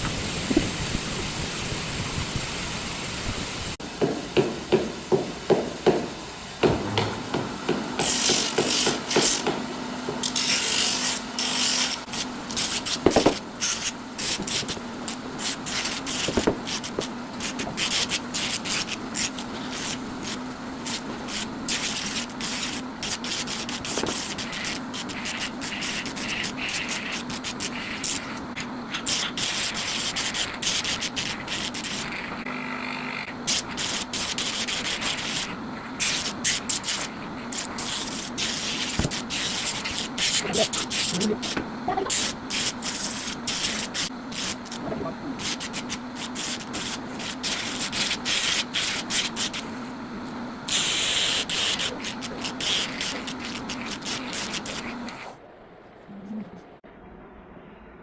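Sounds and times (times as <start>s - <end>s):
steady low hum: 0.0s - 58.0s
sandpaper rubbing on wood: 8.0s - 32.4s, 33.4s - 44.8s, 45.4s - 49.7s, 50.7s - 55.3s.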